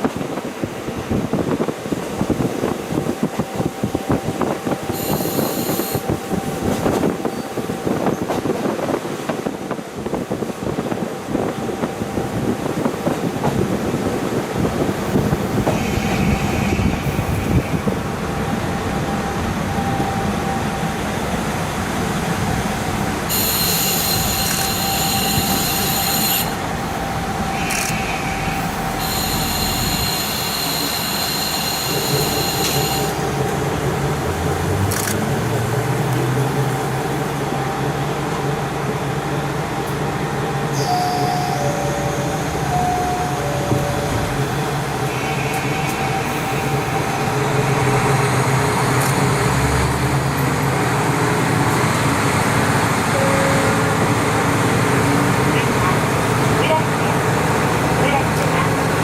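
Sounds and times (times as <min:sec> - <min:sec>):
wheels rumbling on rail: 0:00.0 - 0:59.0
diesel engine: 0:15.0 - 0:40.5, 0:41.6 - 0:59.0
high-pitched wheel squeal: 0:23.3 - 0:26.6, 0:27.5 - 0:33.2.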